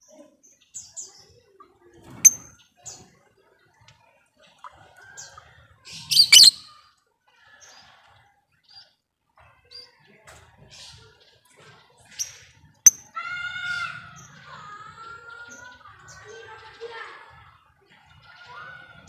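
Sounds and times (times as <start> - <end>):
lovebirds chirping and calling: 0.1 - 3.1, 4.4 - 6.8.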